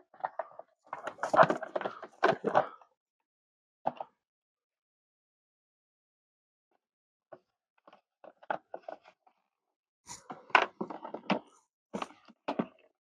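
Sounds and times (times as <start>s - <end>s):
plastic parts clicking and scraping: 0.2s - 2.8s, 10.1s - 12.8s.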